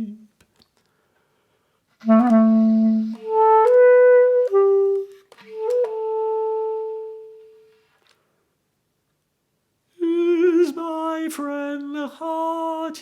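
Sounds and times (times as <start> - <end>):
solo clarinet: 0.0 - 0.4, 2.0 - 7.9.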